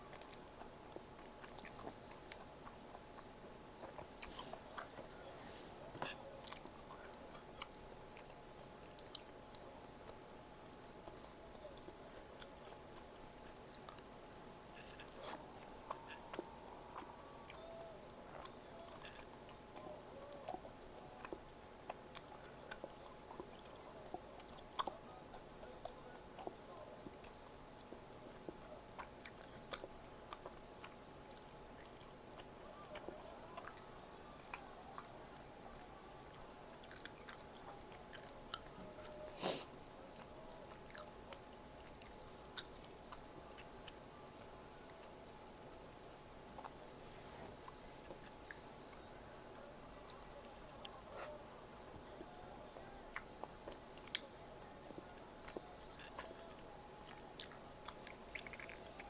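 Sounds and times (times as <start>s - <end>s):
faint steady hum: 0.0s - 59.0s
chewing and biting food: 0.1s - 10.2s, 18.3s - 39.2s, 40.1s - 44.0s, 52.1s - 59.0s.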